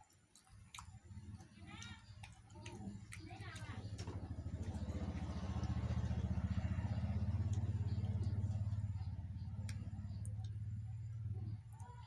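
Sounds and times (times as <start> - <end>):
engine running: 2.7 - 12.0.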